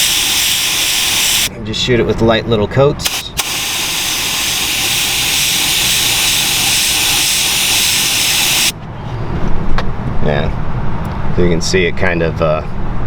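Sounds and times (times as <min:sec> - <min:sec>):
air spray gun hissing: 0:00.0 - 0:01.5, 0:03.0 - 0:08.7.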